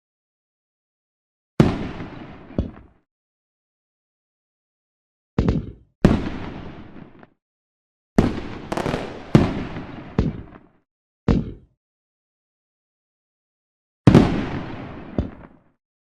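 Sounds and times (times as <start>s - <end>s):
fireworks bangs: 1.6s - 3.0s, 6.0s - 7.3s, 8.2s - 10.8s, 14.1s - 15.7s.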